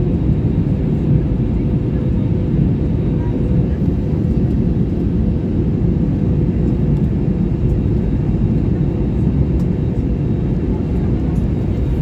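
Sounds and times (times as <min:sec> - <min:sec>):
airliner engine rumble in cabin: 0:00.0 - 0:12.0.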